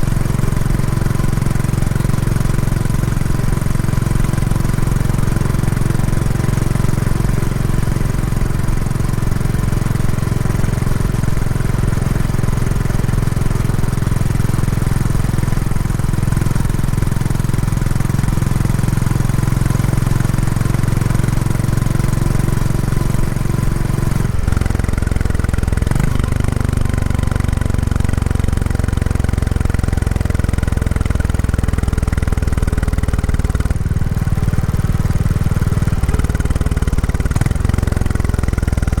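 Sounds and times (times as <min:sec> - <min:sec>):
motorcycle engine thrumming: 0:00.0 - 0:39.0.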